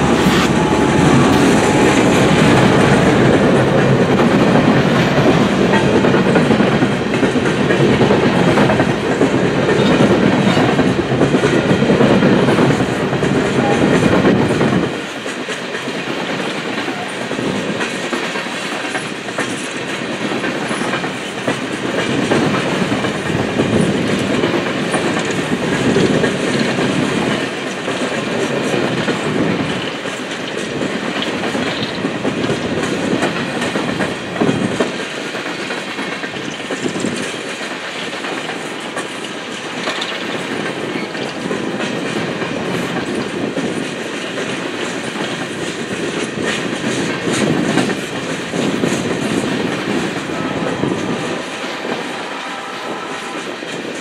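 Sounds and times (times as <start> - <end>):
low rumble: 0.0 - 5.3
freight train wheels clattering: 0.0 - 54.0.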